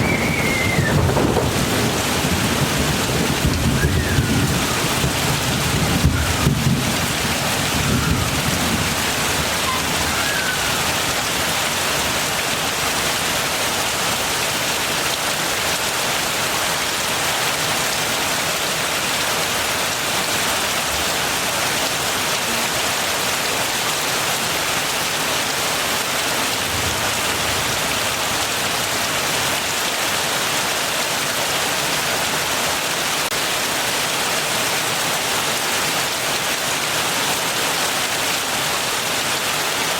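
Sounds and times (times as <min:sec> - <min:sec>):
low thunder rumble: 0:00.0 - 0:10.7
heavy rain falling: 0:00.0 - 0:39.9.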